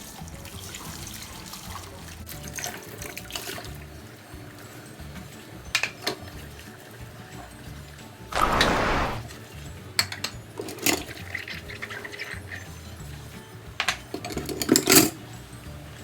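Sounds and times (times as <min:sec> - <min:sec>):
water trickling in a sink: 0:00.4 - 0:03.7.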